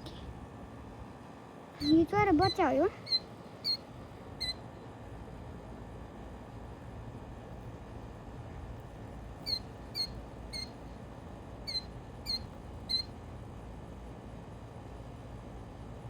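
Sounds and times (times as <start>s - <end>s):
bird chirping: 1.8s - 4.6s, 9.4s - 10.8s, 11.6s - 13.1s.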